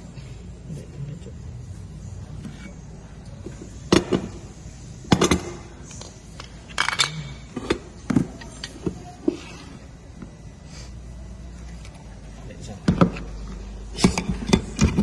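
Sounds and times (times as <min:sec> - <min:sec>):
low steady hum: 0:00.0 - 0:15.0
metal parts clinking and knocking: 0:05.1 - 0:07.8.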